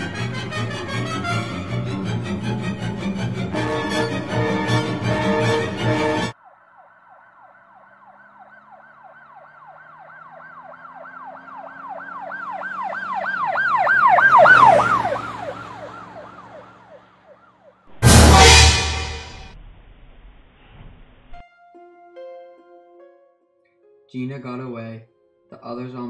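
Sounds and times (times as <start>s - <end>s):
loud music: 0.0s - 6.3s, 17.9s - 19.6s
siren yelping: 0.0s - 17.8s
vehicle engine drone: 0.0s - 21.4s.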